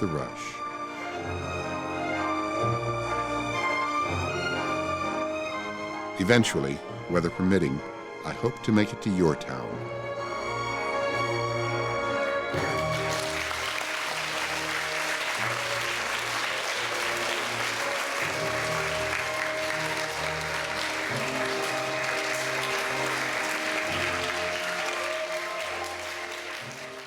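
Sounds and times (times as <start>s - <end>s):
background music: 0.0s - 27.0s
audience applauding: 12.6s - 27.0s.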